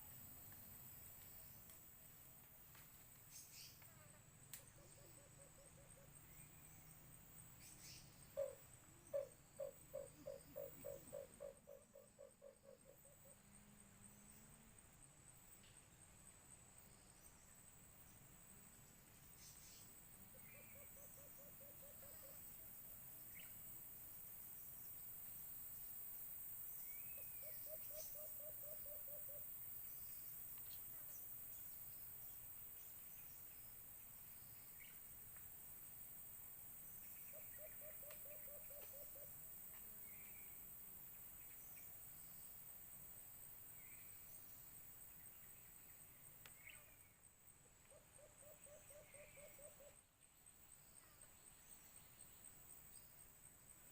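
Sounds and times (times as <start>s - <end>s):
high insect whine: 0.0s - 53.9s
small bird chirps: 3.3s - 3.9s, 7.6s - 13.4s, 26.8s - 31.6s
dove hooting: 8.3s - 13.4s, 20.3s - 22.4s, 27.2s - 29.5s, 37.3s - 39.3s, 47.9s - 50.0s.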